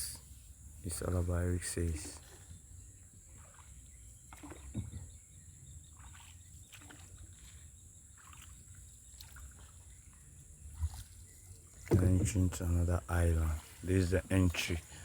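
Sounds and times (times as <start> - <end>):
water swishing against boat: 0.0 - 15.0.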